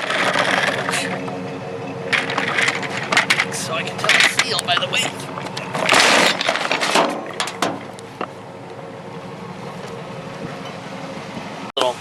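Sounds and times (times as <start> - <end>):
scrap metal clattering: 0.0 - 8.4
steady background hum: 0.0 - 11.7.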